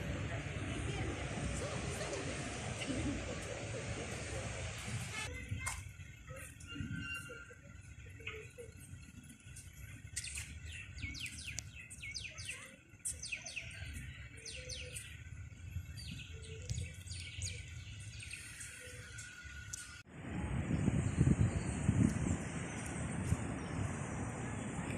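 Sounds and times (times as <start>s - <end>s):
small birds chirping: 0.2s - 20.1s.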